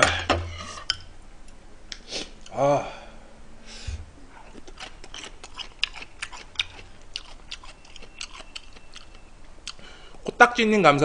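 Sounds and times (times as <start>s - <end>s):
person chewing food: 4.3s - 10.3s.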